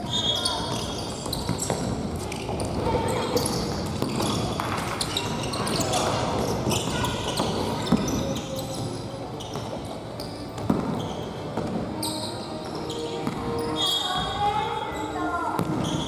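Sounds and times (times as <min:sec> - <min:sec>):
shoes squeaking on court: 0:00.0 - 0:16.0
ball kicked and bouncing: 0:10.6 - 0:11.8, 0:15.6 - 0:16.0.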